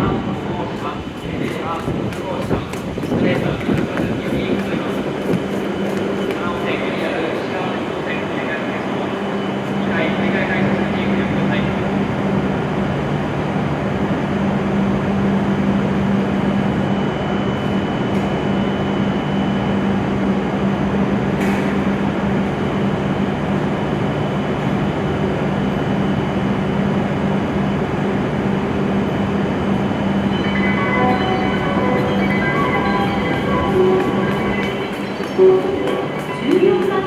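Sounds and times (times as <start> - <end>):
train equipment low hum: 0.0 - 37.0
high whine: 25.7 - 36.9.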